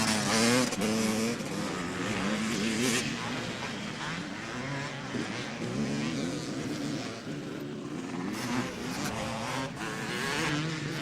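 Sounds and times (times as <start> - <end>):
motocross bike engines revving: 0.0 - 11.0.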